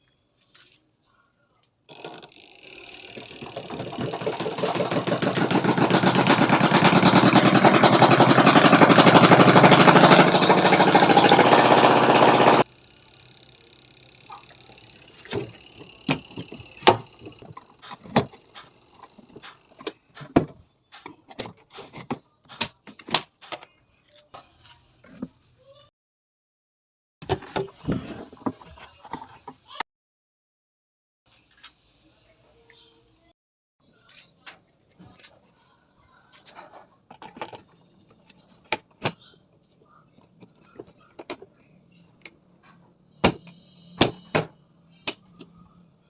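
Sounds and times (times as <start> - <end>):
washing machine rattling: 3.2 - 12.6.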